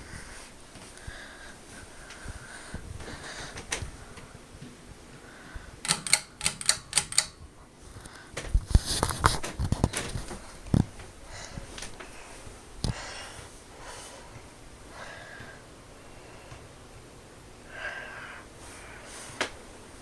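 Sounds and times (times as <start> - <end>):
rapid sharp clicking and rattling: 5.9 - 7.5.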